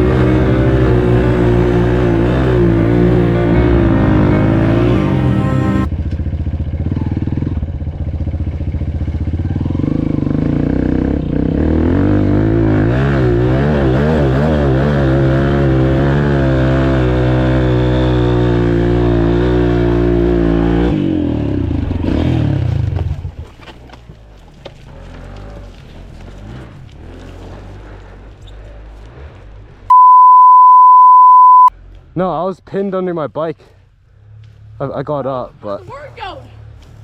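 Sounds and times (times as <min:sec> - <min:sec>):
dirt bike engine revving: 0:00.0 - 0:05.9.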